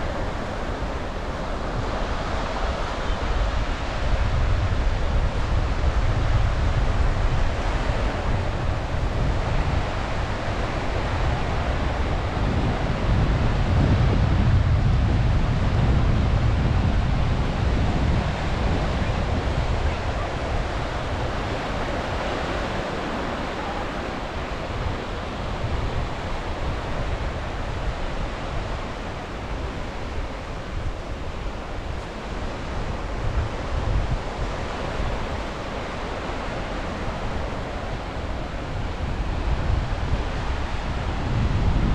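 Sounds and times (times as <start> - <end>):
sea waves washing onto shore: 0.0 - 41.9
wind buffeting microphone: 0.0 - 41.9.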